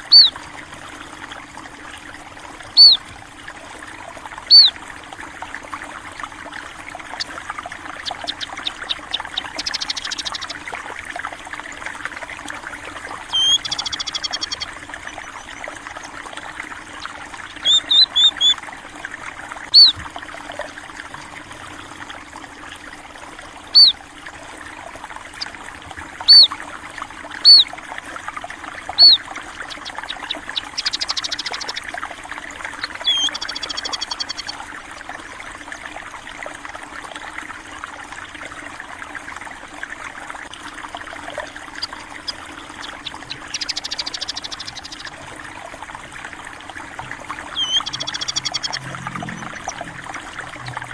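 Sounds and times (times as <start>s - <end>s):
small birds chirping: 0.0s - 0.4s, 2.8s - 3.0s, 4.5s - 4.8s, 7.0s - 10.7s, 13.2s - 15.8s, 17.0s - 18.6s, 19.7s - 20.0s, 23.8s - 24.0s, 26.2s - 26.6s, 27.4s - 27.7s, 28.9s - 31.9s, 32.7s - 34.6s, 41.6s - 45.2s, 47.0s - 50.9s
trickle of running water: 0.0s - 50.9s
high buzzy trills: 47.0s - 50.9s.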